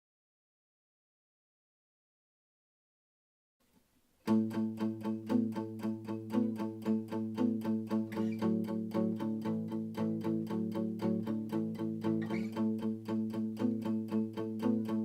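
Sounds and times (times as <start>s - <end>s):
picked guitar pattern: 4.3s - 15.0s.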